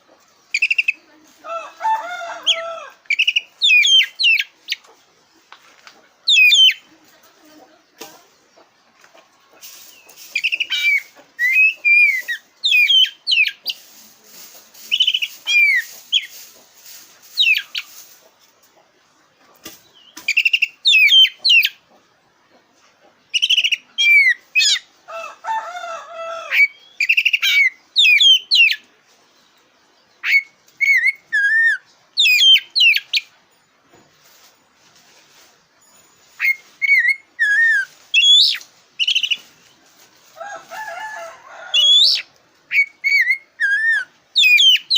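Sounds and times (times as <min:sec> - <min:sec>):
bird singing whistled notes: 0:03.1 - 0:04.5, 0:06.3 - 0:06.9, 0:09.9 - 0:13.6, 0:14.9 - 0:16.3, 0:20.0 - 0:21.8, 0:26.6 - 0:28.9, 0:30.1 - 0:33.3, 0:35.8 - 0:39.5, 0:41.8 - 0:44.9.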